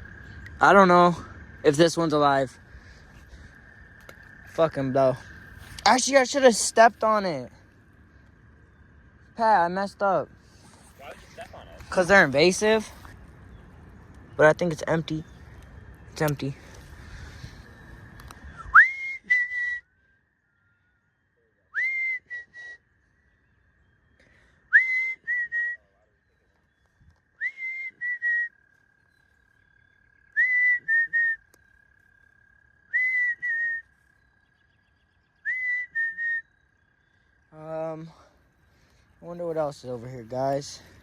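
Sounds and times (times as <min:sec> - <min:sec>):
faint steady high tone: 0:03.8 - 0:41.0
person whistling a call: 0:18.5 - 0:19.9, 0:21.7 - 0:22.8, 0:24.7 - 0:26.0, 0:27.4 - 0:28.5, 0:30.4 - 0:31.5, 0:32.9 - 0:33.9, 0:35.4 - 0:36.5.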